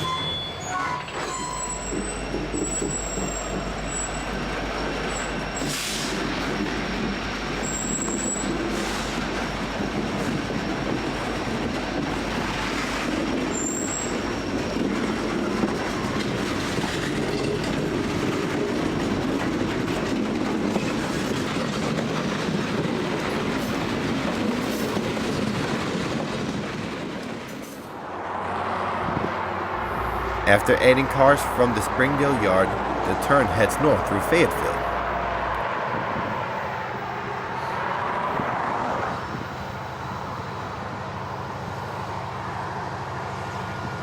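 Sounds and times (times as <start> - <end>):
high-pitched wheel squeals: 0.0 - 5.7, 13.5 - 14.8
freight train wheels clattering: 0.0 - 28.0.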